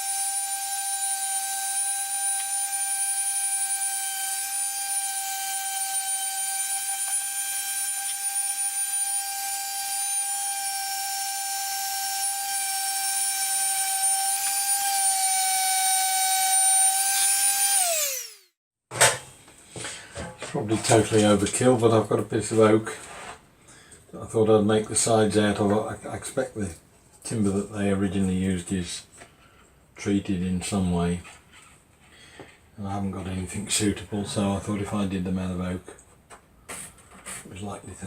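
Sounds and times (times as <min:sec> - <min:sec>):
power tool motor whining: 0:00.0 - 0:18.5.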